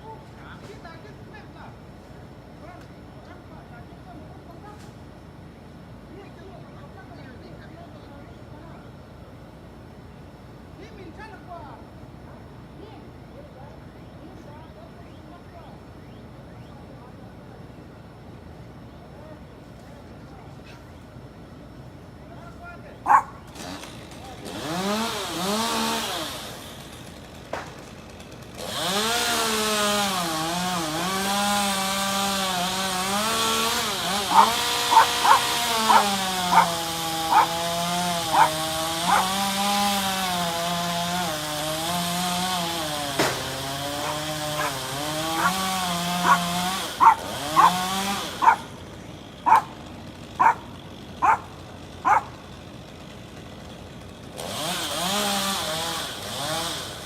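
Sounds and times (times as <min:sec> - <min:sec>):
chainsaw cutting wood: 0:23.1 - 0:57.0.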